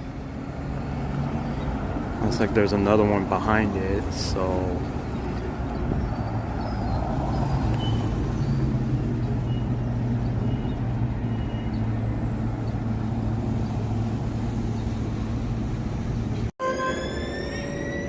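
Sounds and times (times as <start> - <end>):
city traffic hum: 0.0 - 18.0.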